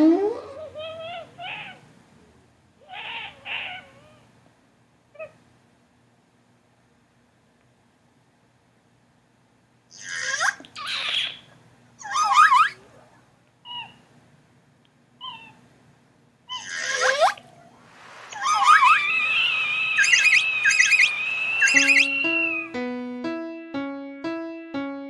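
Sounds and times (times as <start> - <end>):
cartoon animal squealing cries: 0.0 - 1.8, 2.8 - 4.3, 9.9 - 12.9, 13.6 - 14.0, 15.2 - 15.6, 16.5 - 17.6, 18.3 - 22.7
faint chirps: 17.9 - 22.8.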